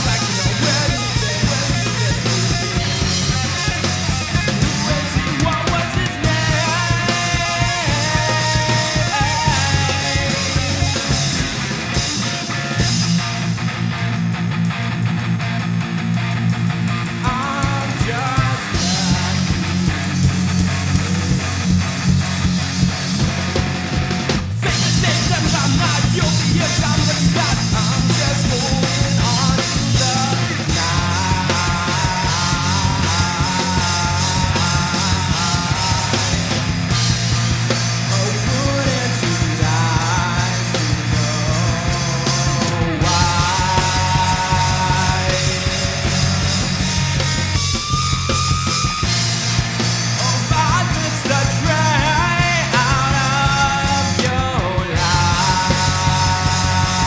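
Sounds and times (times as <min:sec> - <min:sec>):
hard rock band playing: 0:00.0 - 0:57.0
gliding vocal or guitar melody: 0:24.6 - 0:37.1, 0:38.1 - 0:47.6, 0:50.2 - 0:57.0.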